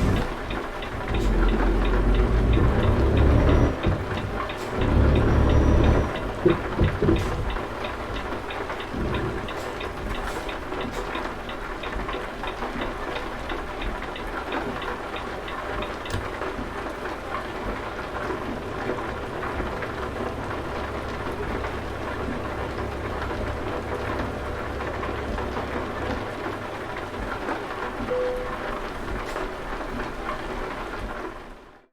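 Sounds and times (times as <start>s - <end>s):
truck engine humming: 0.0s - 30.9s
steady rain: 0.0s - 31.9s.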